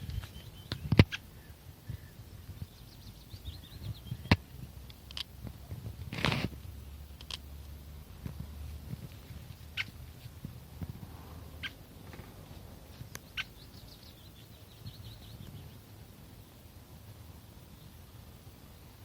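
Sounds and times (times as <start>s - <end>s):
small birds chirping: 0.0s - 5.7s, 9.1s - 16.5s
steady low rumble: 0.0s - 19.0s.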